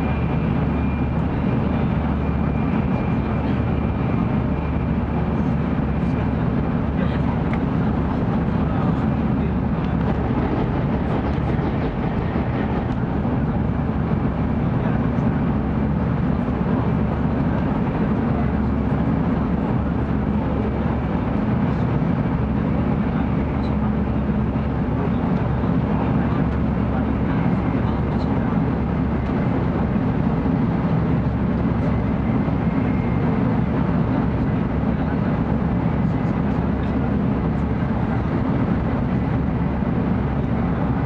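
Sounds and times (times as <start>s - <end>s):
train interior rumble: 0.0s - 41.0s.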